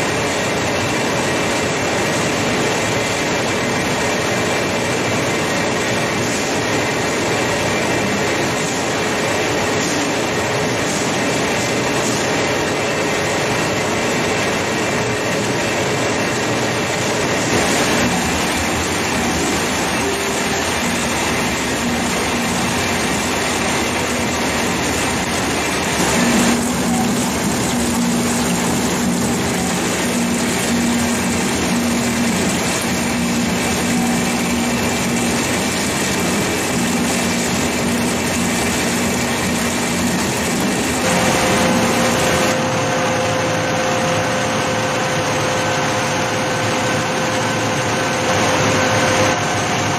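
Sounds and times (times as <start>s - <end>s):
machinery din: 17.4s - 42.6s.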